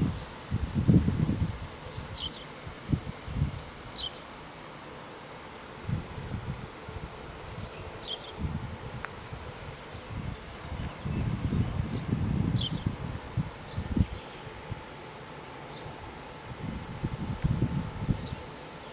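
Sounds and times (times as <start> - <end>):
wind buffeting microphone: 0.0 - 2.2, 2.8 - 3.9, 5.8 - 14.9, 15.9 - 18.5.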